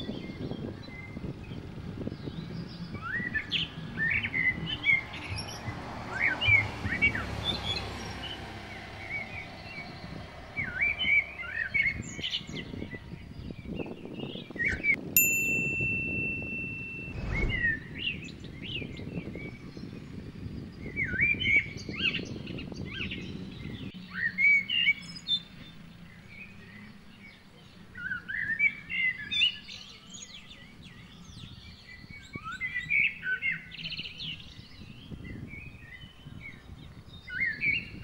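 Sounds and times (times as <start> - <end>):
small birds chirping: 0.0 - 38.0
clear ringing tone: 15.2 - 17.9.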